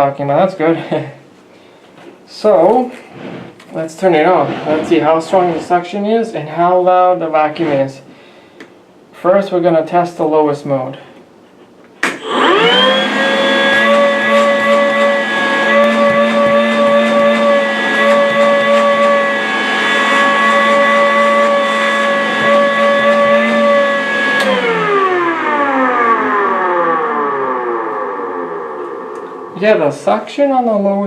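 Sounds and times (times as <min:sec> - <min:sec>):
vacuum motor whine: 0:12.1 - 0:29.8.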